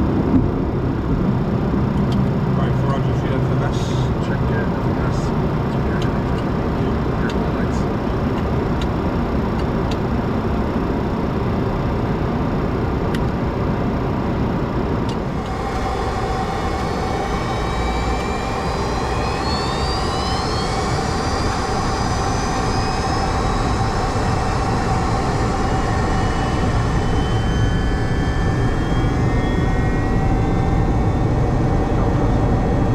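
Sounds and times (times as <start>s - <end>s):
high whining tones: 0.0s - 32.9s
steady tone: 0.0s - 32.9s
jet engine and air rush: 14.8s - 32.9s.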